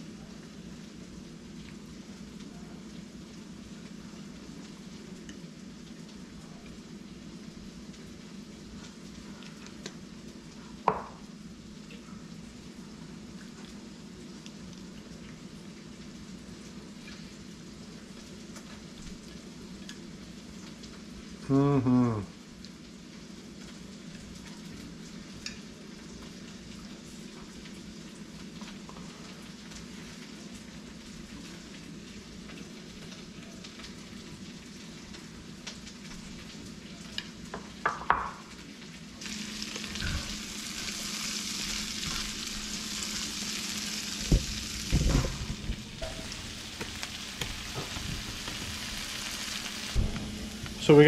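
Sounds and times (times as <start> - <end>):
spatula knocking in pan: 10.8 - 11.2, 44.2 - 48.8
vegetables sizzling in oil: 12.5 - 51.0
steady hum: 39.2 - 51.0.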